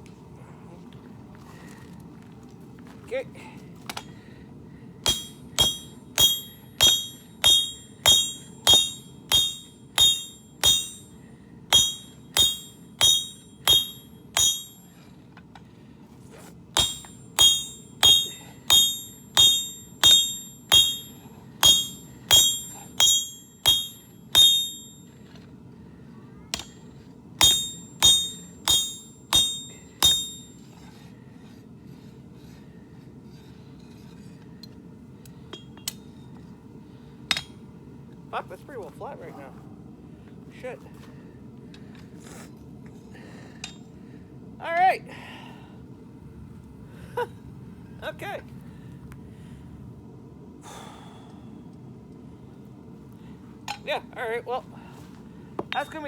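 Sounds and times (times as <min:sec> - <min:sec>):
hammer striking steel on anvil: 0:05.0 - 0:14.9, 0:16.8 - 0:25.1, 0:26.5 - 0:30.6, 0:37.3 - 0:37.6.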